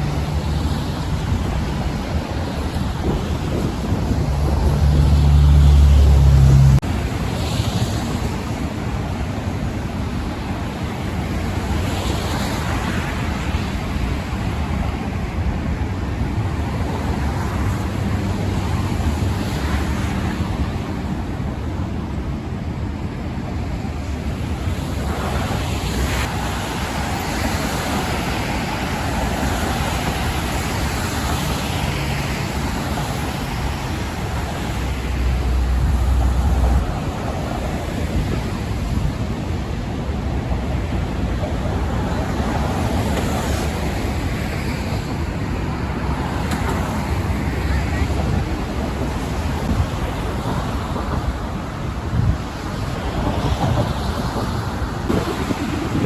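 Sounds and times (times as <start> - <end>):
cars passing with tyre hiss: 0.0 - 8.5, 23.9 - 56.0
road traffic noise: 0.0 - 56.0
wind rumble on microphone: 0.0 - 56.0.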